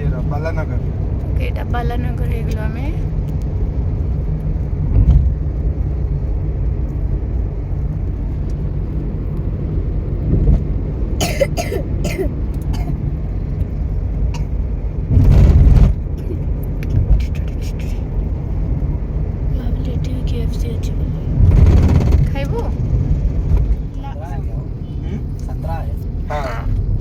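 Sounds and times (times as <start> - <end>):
train rumbling inside coach: 0.0 - 27.0.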